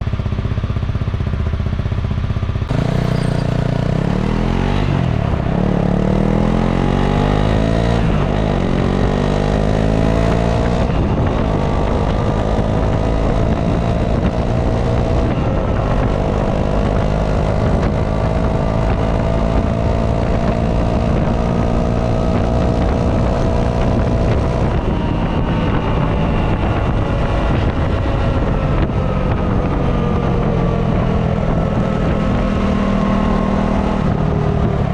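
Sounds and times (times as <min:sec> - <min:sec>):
single-cylinder engine running: 0:00.1 - 0:08.6.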